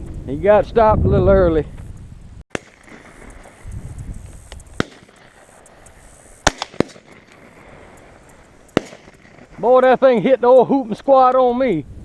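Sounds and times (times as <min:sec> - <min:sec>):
shotgun shots: 0:02.5 - 0:03.9, 0:04.6 - 0:10.0.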